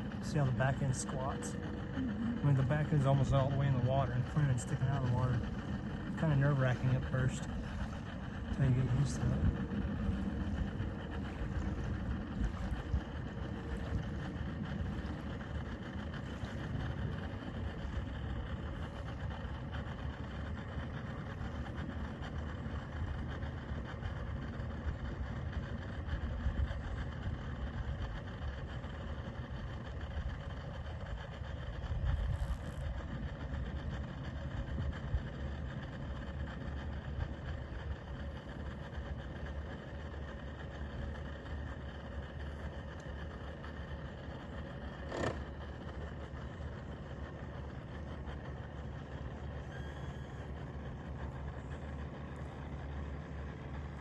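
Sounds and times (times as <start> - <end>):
boat motor running: 0.0 - 54.0.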